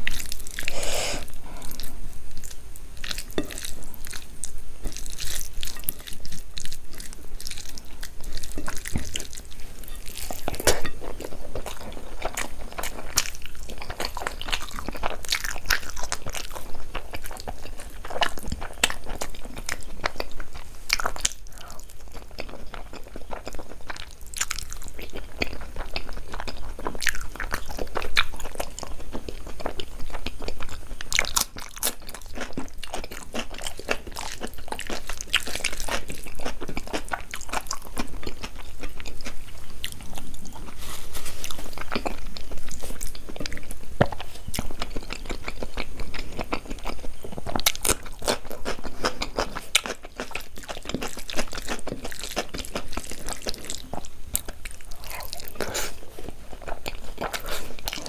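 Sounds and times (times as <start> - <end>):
person chewing crunchy food: 0.0 - 58.0.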